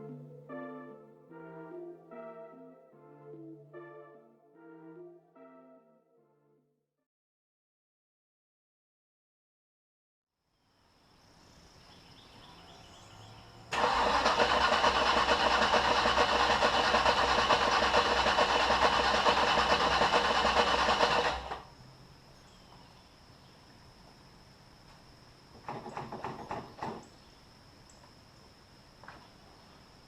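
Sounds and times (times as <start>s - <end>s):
car engine starting and running: 13.7s - 21.6s.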